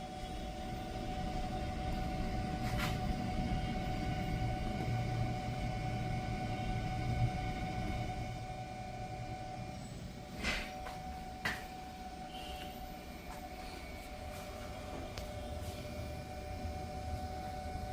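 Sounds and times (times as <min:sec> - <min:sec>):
steady high whine: 0:00.0 - 0:17.9.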